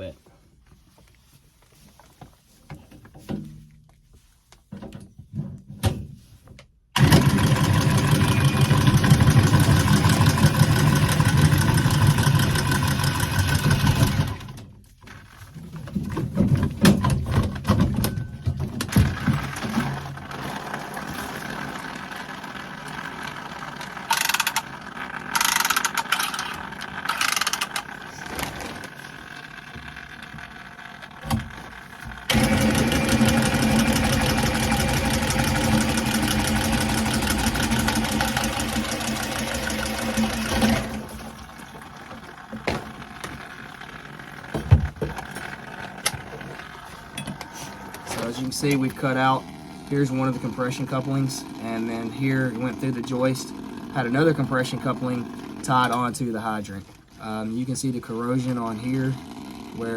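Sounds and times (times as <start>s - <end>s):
tubing cutter cutting pipe: 7.0s - 14.5s, 32.1s - 41.4s.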